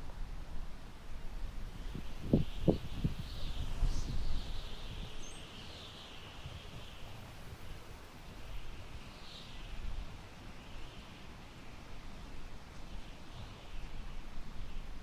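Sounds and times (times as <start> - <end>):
wind gusting through grass: 0.1 - 10.3.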